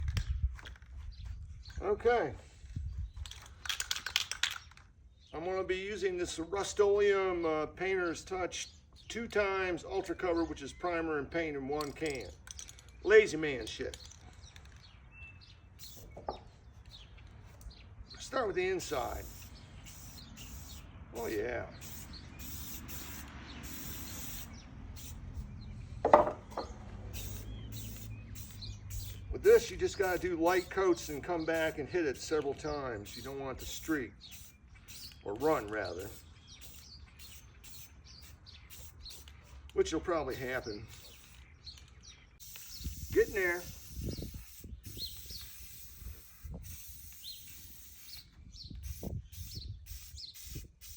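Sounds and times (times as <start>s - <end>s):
small songbird chirping: 0.1s - 1.9s, 2.5s - 3.6s, 4.5s - 5.6s, 8.5s - 9.4s, 10.0s - 50.9s
spray paint can hissing: 15.8s - 16.2s, 18.8s - 39.7s, 40.3s - 41.4s, 42.4s - 50.9s.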